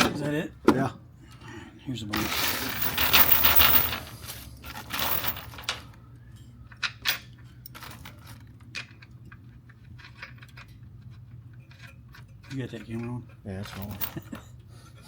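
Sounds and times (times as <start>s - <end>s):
small metal parts clinking: 2.1s - 6.0s, 6.8s - 9.0s, 11.6s - 14.4s.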